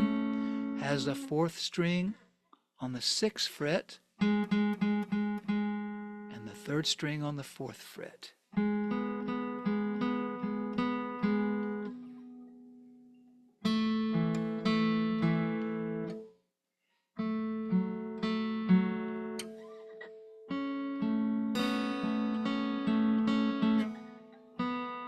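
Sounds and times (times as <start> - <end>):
acoustic guitar strumming: 0.0 - 2.1, 4.2 - 7.0, 8.6 - 12.6, 13.6 - 16.3, 17.2 - 25.0.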